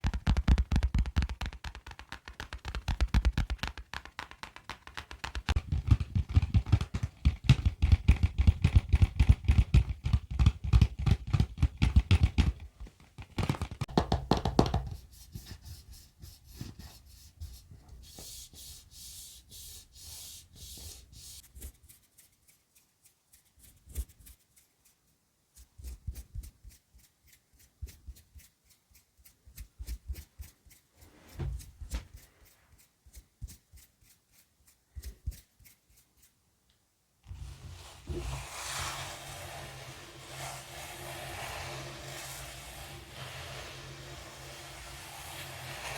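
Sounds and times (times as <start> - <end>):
finger tapping on objects: 0.0 - 12.6
soft hissy sound: 15.0 - 45.9.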